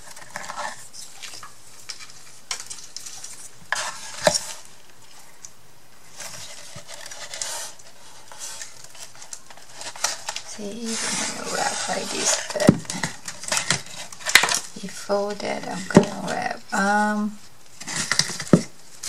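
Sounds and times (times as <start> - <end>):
craft materials rustling: 0.0 - 16.6.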